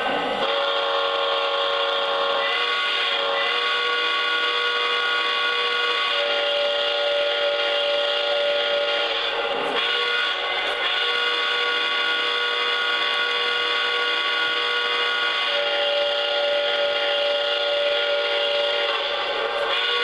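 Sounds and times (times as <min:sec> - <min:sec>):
chime steam whistle: 0:00.4 - 0:20.0.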